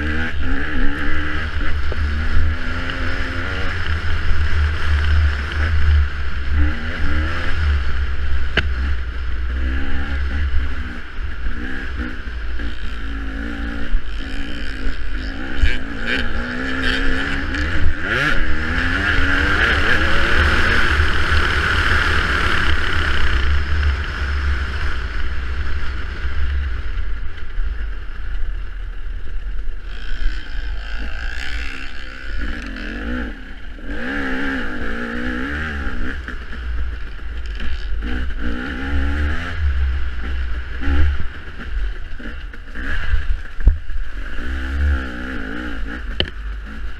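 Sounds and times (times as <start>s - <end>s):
dirt bike engine revving: 0.0s - 27.0s, 29.8s - 46.9s
wind rumble on microphone: 38.8s - 45.0s.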